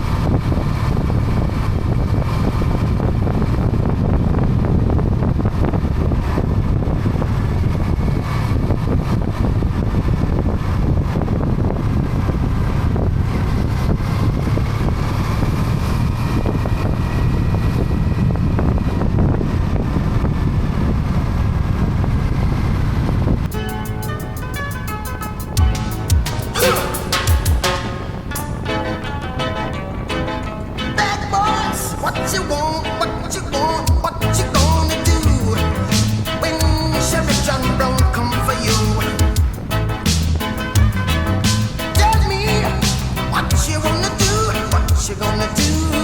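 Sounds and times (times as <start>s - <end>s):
motorcycle engine and road noise: 0.0s - 26.7s, 27.3s - 46.0s
wind over microphone: 0.0s - 28.7s.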